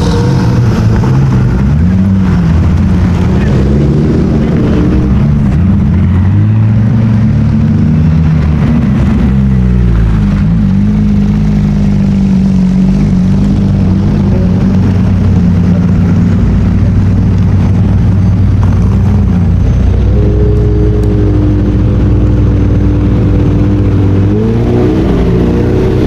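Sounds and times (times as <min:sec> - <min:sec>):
car engine running at low revs: 0:00.0 - 0:26.0.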